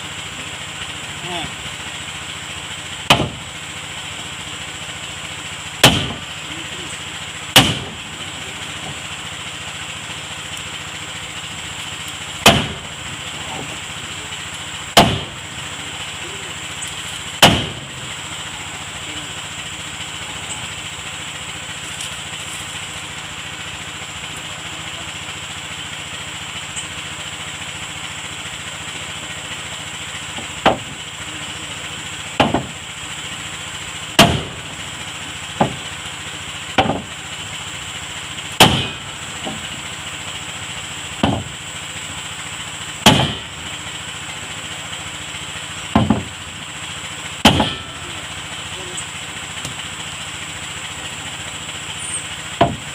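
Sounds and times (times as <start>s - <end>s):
motor hum: 0.0s - 52.9s
sharp hammer blows: 5.8s - 6.2s, 7.6s - 7.9s, 12.4s - 12.8s, 15.0s - 15.3s, 17.4s - 17.8s, 38.6s - 39.1s, 43.0s - 43.6s, 47.4s - 48.1s.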